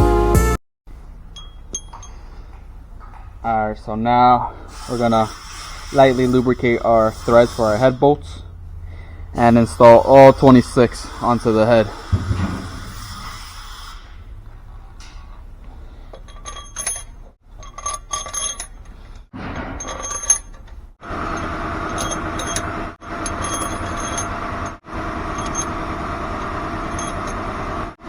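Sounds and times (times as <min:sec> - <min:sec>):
engine-like hum: 0:00.9 - 0:28.0
metal bolts clinking: 0:01.2 - 0:03.4, 0:16.0 - 0:27.5.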